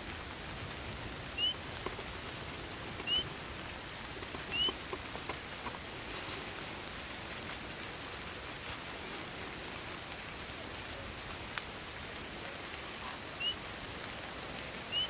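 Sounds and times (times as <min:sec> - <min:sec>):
steady rain falling: 0:00.0 - 0:15.0
water drips: 0:00.0 - 0:15.0
animal chirping: 0:01.4 - 0:01.6, 0:03.0 - 0:03.3, 0:04.5 - 0:04.8, 0:13.0 - 0:13.7.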